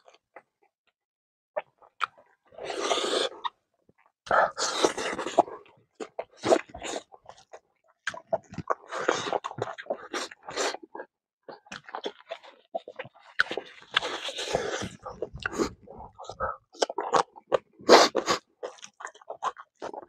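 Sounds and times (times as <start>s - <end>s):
man chewing with wet smacking: 4.0s - 20.0s.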